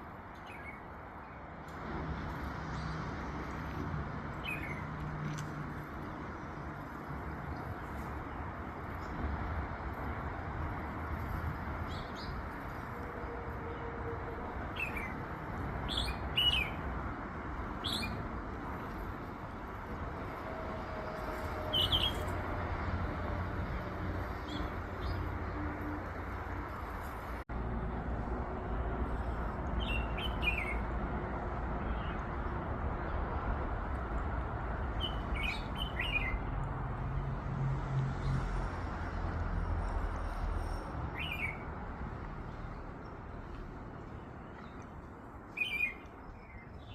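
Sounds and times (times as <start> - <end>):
small birds chirping: 44.0 - 46.9.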